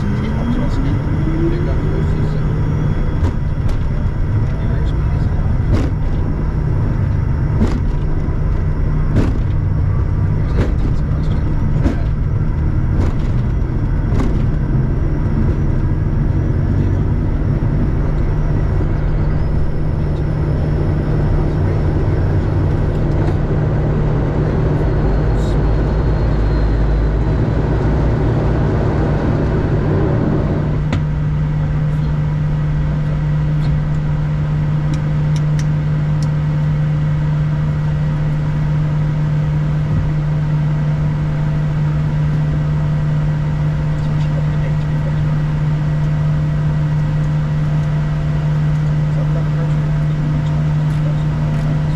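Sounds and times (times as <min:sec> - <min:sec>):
jet engine drone: 0:00.0 - 0:51.9.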